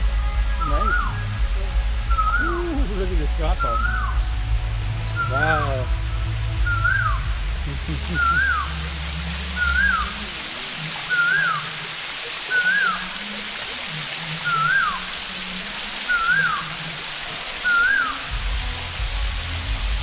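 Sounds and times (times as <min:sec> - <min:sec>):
low rumble: 0:00.0 - 0:10.3, 0:18.3 - 0:20.0
falling water rushing: 0:00.0 - 0:20.0
animal whistled call: 0:00.5 - 0:04.4, 0:06.6 - 0:07.3, 0:08.0 - 0:17.0, 0:17.6 - 0:18.4.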